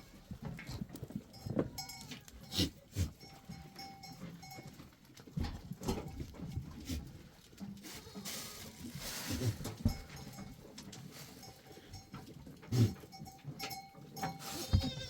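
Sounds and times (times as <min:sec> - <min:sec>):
goats and sheep bleating: 0:01.4 - 0:03.5, 0:07.8 - 0:08.8, 0:14.2 - 0:15.0.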